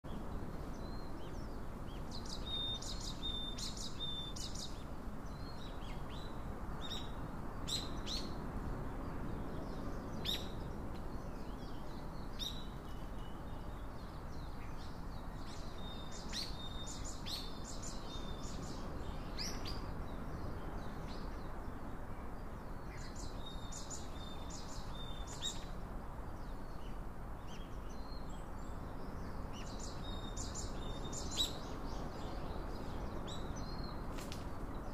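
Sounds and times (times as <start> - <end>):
steady background hiss: 0.1 - 34.9
birds chirping and singing: 0.8 - 7.1.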